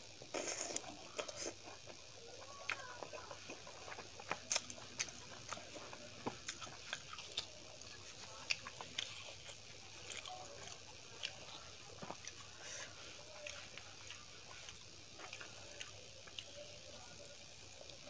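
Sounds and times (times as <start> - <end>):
mouth chewing and smacking: 2.6 - 12.8.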